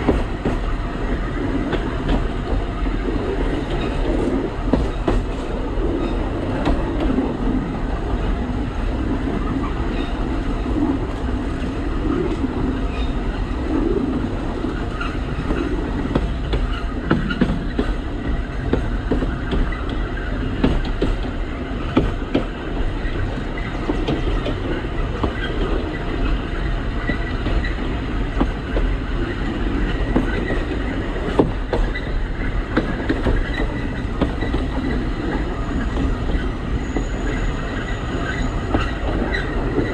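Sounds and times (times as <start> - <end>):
train rumbling: 0.0 - 39.9
faint wheel squeal: 35.3 - 39.6.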